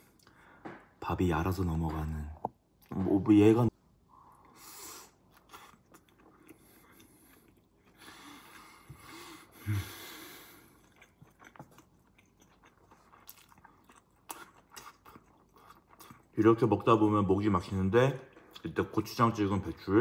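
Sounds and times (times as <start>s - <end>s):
wet chewing and mouth clicks: 5.2s - 9.0s, 10.4s - 16.4s.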